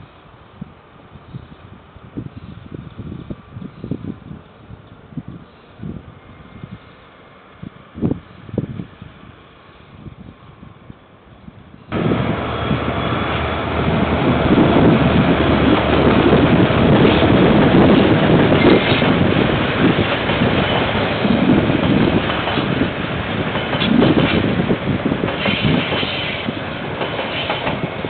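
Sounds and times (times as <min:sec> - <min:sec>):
train wheels rumbling on rails: 0:11.6 - 0:28.0.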